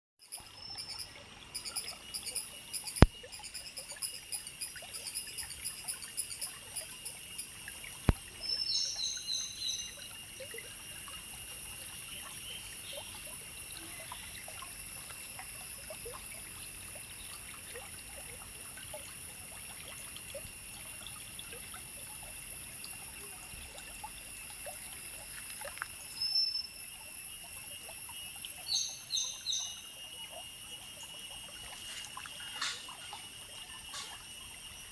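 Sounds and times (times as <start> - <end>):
high-pitched insect drone: 0.2 - 34.9
water trickling: 0.3 - 34.9
bird calls: 31.9 - 33.2.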